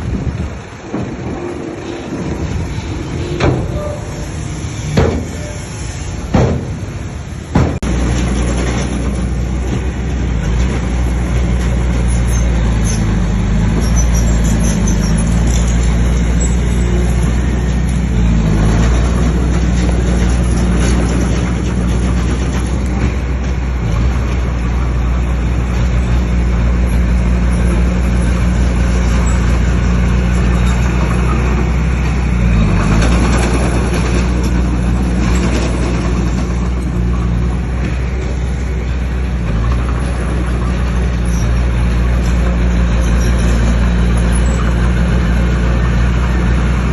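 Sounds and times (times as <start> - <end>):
bulldozer diesel engine running: 0.0 - 46.9
sharp knocks: 5.0 - 5.4, 6.3 - 6.9, 7.5 - 8.1.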